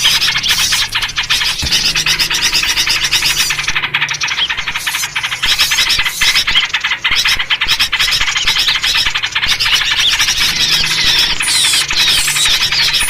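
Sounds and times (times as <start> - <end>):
downward-sliding whistled notes: 0.0 - 6.7
songbirds chattering and squawking: 0.0 - 13.0.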